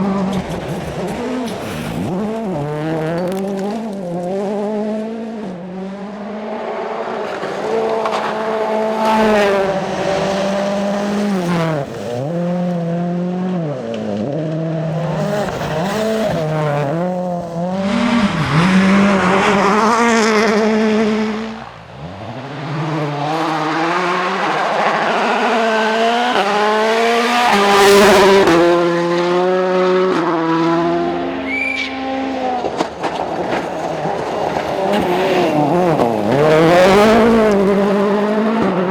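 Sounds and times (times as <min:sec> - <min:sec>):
tyre and gravel noise: 0:00.0 - 0:04.9, 0:06.8 - 0:20.3, 0:31.0 - 0:38.9
rally car engines revving: 0:00.0 - 0:38.9.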